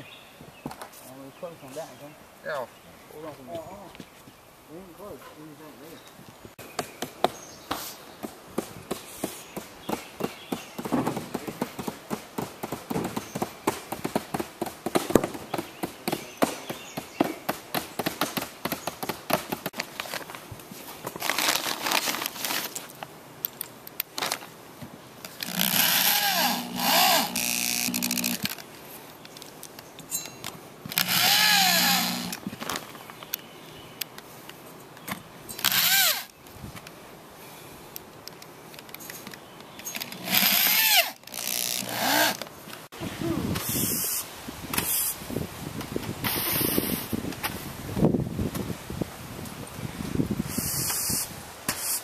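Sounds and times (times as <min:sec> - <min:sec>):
power drill whining: 0:25.4 - 0:28.6, 0:30.9 - 0:32.4, 0:35.6 - 0:36.3, 0:40.0 - 0:42.4.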